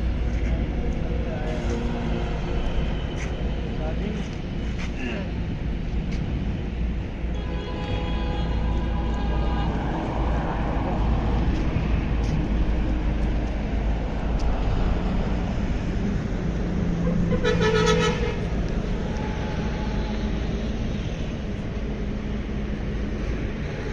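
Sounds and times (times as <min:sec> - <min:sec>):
low road rumble: 0:00.0 - 0:23.9
vehicle horn toot: 0:07.3 - 0:09.6, 0:17.3 - 0:18.4.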